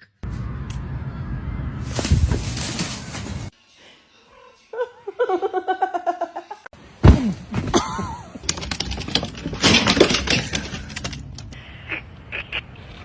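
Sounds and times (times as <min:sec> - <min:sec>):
loud thud: 0:01.9 - 0:03.5
clatter of knocks and clicks: 0:07.6 - 0:11.6.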